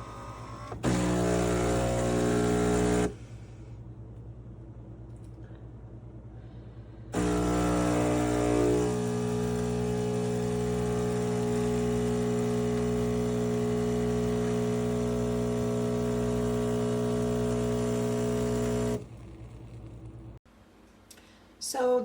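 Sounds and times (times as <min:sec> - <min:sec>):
coffee machine buzzing hum: 0:00.0 - 0:03.2, 0:07.2 - 0:20.4.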